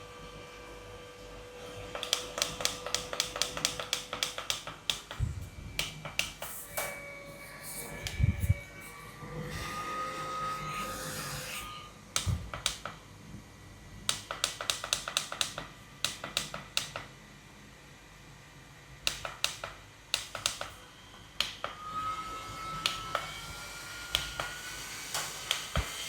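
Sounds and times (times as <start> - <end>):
handheld fan motor whining: 1.8 - 11.1, 21.1 - 26.0.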